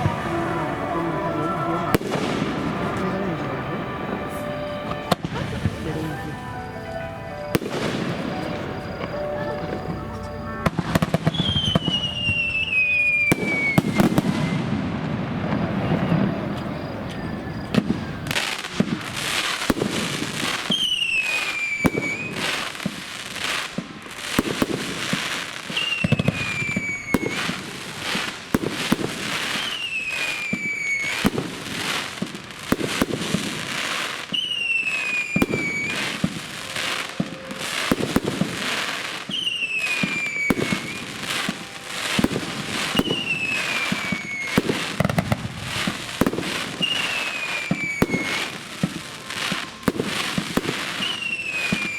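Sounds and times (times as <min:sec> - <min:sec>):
high falling whistle: 0:00.0 - 0:09.2, 0:10.9 - 0:14.8, 0:25.7 - 0:27.6, 0:34.3 - 0:38.1, 0:39.3 - 0:45.1, 0:45.7 - 0:51.9
fireworks shells bursting: 0:00.0 - 0:51.9.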